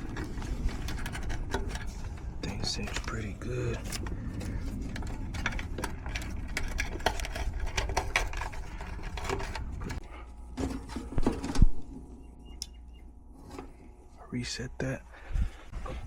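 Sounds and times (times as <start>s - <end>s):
tools and metal parts clicking: 0.0s - 10.0s.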